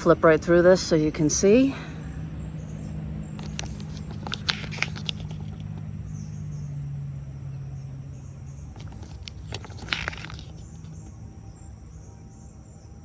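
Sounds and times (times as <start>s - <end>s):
paper pages flipping: 3.4s - 5.8s, 8.8s - 11.1s.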